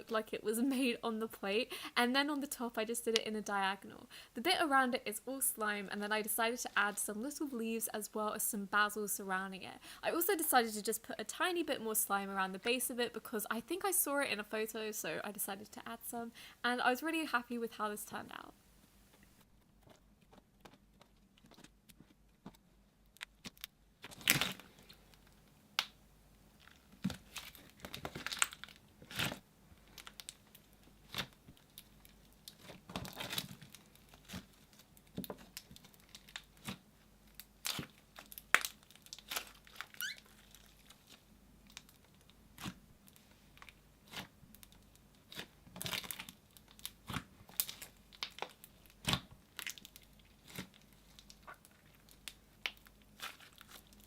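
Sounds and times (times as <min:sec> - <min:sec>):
slime crackling and popping: 0:26.6 - 0:54.0.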